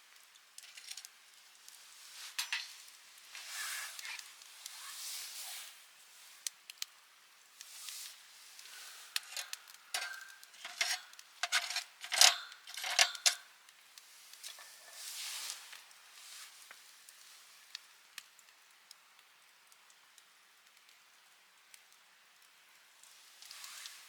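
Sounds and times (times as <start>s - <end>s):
small objects clattering: 0.6s - 1.2s, 2.2s - 4.4s, 8.6s - 13.5s
short hiss: 1.9s - 6.5s, 7.6s - 10.5s, 14.0s - 17.6s.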